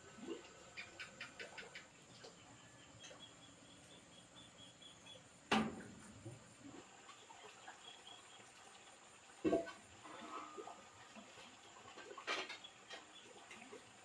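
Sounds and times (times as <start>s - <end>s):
faint outdoor background: 0.0s - 14.0s.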